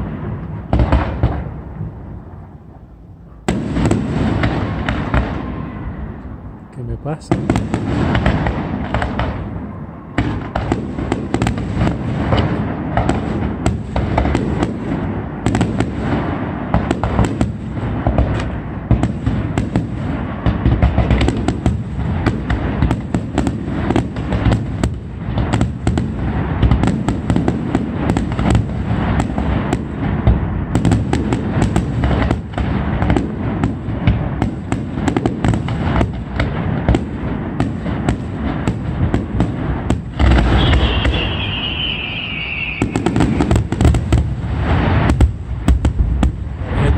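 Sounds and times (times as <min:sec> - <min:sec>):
fireworks bangs and crackles: 0:00.0 - 0:46.9
low rumble of explosions: 0:00.0 - 0:46.9.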